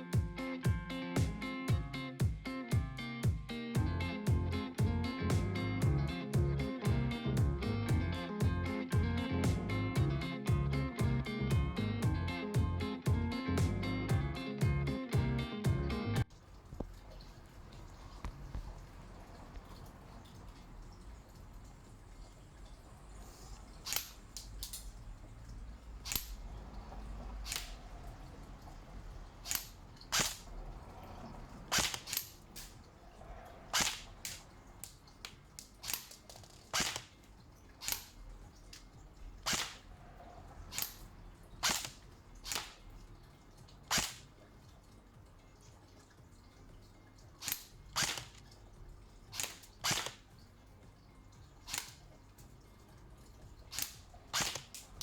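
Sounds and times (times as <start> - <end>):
airsoft rifle single shots: 31.7 - 32.7, 33.7 - 34.4, 36.7 - 37.1, 39.4 - 39.9, 41.6 - 42.8, 43.9 - 44.2, 47.4 - 48.4, 49.4 - 50.2, 53.8 - 54.8.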